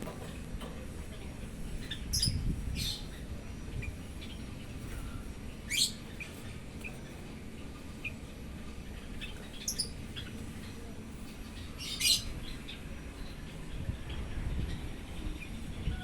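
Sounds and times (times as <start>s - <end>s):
bird squawky calls and chirps: 1.8s - 7.2s, 9.0s - 10.8s, 11.4s - 13.4s.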